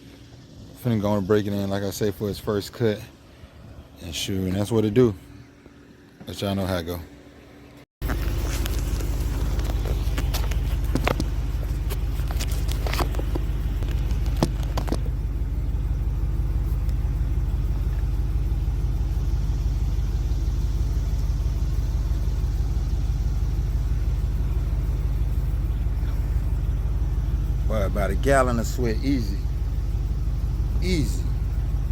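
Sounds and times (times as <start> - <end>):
engine running with low rumble: 0.0 - 31.9
sharp clicks and knocks: 8.0 - 15.2.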